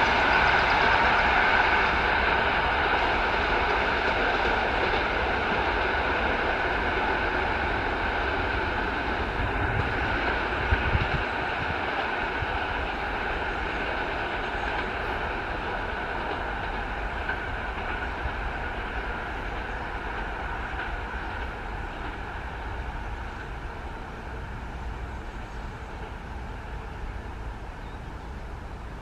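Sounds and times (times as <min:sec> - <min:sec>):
train running: 0:00.0 - 0:29.0.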